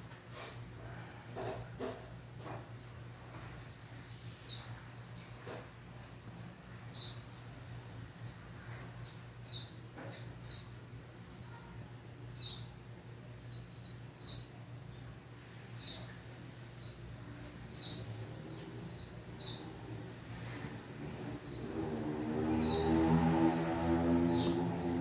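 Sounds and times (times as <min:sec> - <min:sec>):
small bird chirping: 0:08.1 - 0:12.8, 0:13.4 - 0:20.7.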